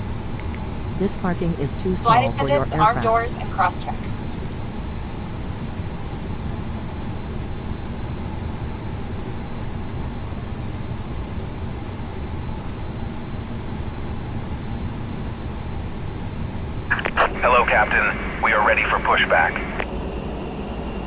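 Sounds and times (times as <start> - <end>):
air conditioning rumble and hiss: 16.9 - 19.8
faint high whine: 16.9 - 19.9.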